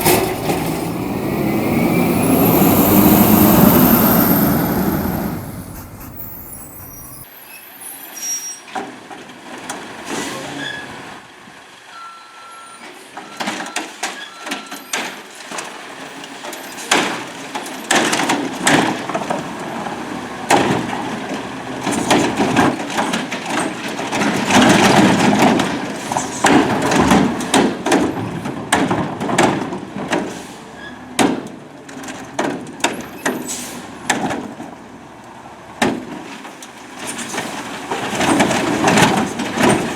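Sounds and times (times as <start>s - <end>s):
garbage truck engine running: 0.0s - 7.3s, 18.3s - 26.0s, 37.1s - 39.9s.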